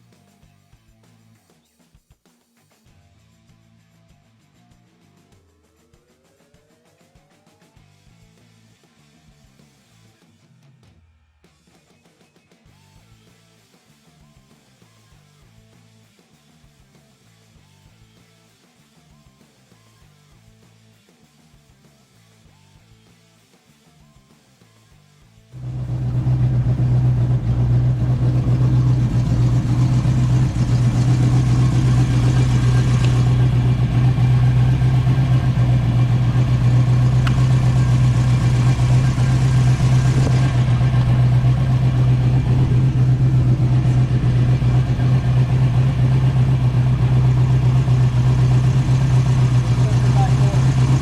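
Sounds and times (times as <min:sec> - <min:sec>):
car engine idling: 0:25.6 - 0:51.0.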